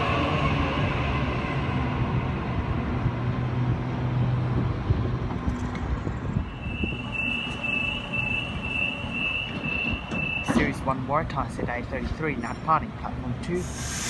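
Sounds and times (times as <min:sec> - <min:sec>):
electric train humming: 0:00.0 - 0:10.5
door-closing warning beeps: 0:06.8 - 0:10.8.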